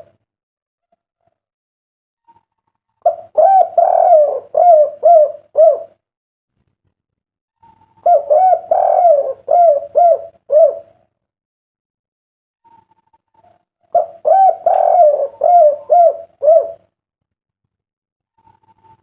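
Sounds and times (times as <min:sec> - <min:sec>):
dove cooing: 0:03.0 - 0:06.0, 0:07.6 - 0:11.1, 0:12.7 - 0:16.9.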